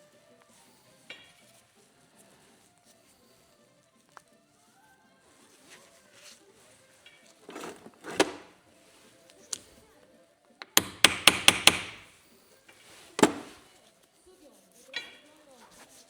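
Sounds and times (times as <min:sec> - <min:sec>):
hammer knocks: 0:10.7 - 0:12.1, 0:13.2 - 0:13.6.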